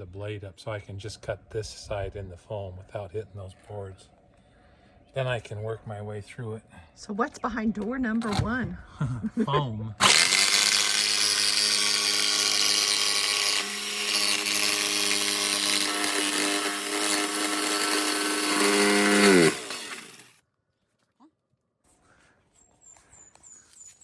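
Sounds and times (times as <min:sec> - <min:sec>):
power saw cutting foam: 0:10.0 - 0:20.4.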